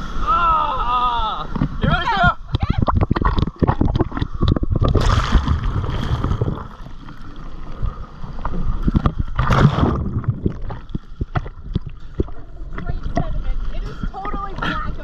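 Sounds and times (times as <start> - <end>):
surf sloshing: 1.3 - 15.0
water knocks and splashes on camera: 2.5 - 7.2, 8.4 - 13.4.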